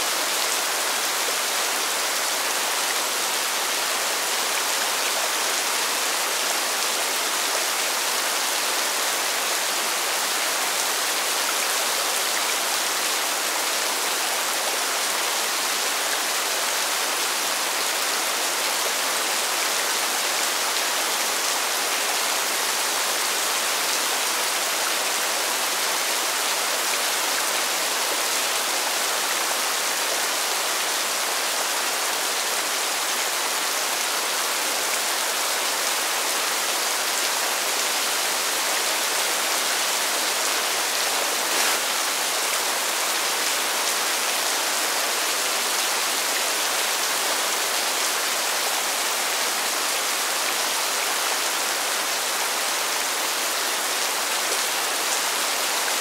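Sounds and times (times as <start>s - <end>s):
rain hitting pavement: 37.8s - 43.0s.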